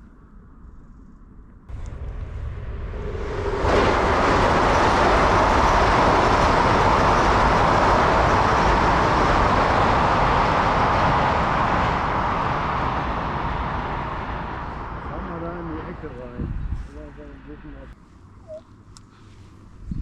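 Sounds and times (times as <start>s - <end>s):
wind and water rushing: 1.7s - 15.0s.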